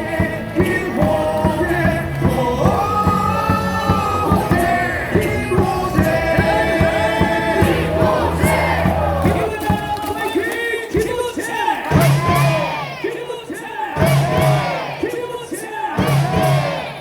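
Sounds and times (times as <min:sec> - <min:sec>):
crowd singing: 0:00.0 - 0:17.0
stadium cheer song with drumbeat: 0:00.0 - 0:17.0.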